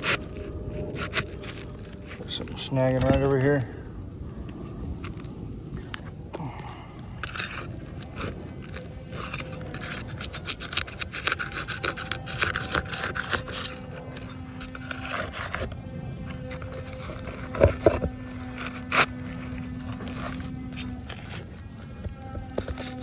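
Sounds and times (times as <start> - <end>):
roof shingles being scraped: 7.2 - 23.0.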